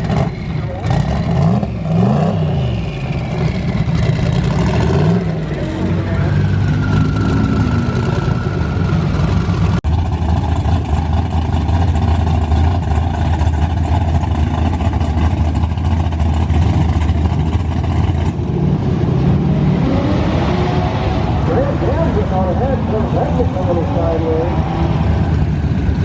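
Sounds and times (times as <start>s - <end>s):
car engine running: 8.1s - 19.4s, 21.2s - 26.0s.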